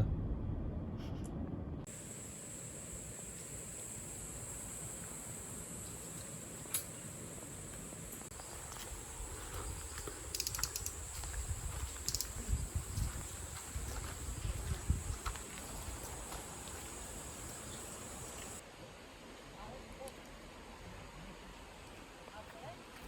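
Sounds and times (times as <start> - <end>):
high-pitched insect chirring: 1.9 - 18.6
sharp clicks: 10.3 - 11.3, 11.9 - 12.5.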